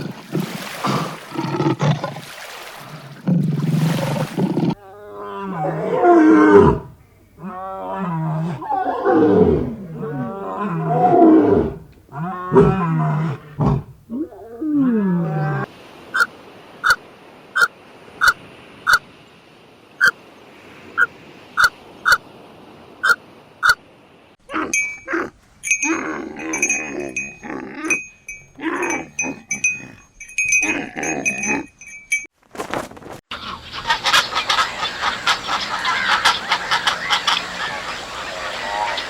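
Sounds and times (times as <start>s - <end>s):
large animal roaring: 3.2s - 15.7s.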